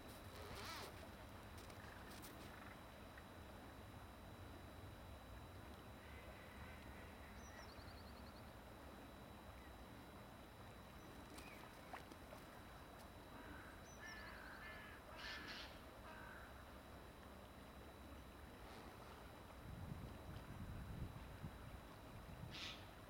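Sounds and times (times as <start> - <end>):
bird song with trill: 6.6 - 8.6.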